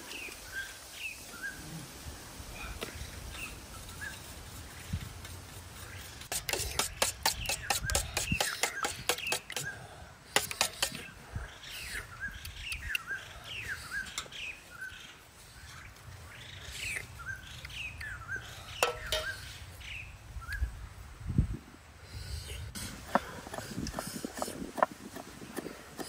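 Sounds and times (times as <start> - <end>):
bird chirping: 2.9 - 9.9, 10.5 - 20.8.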